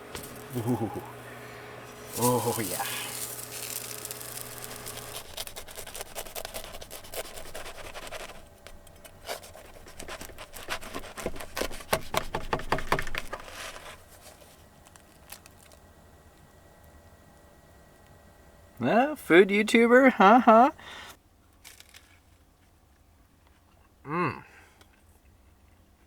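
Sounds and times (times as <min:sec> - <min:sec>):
tortilla crackling in frying pan: 0:01.9 - 0:08.6.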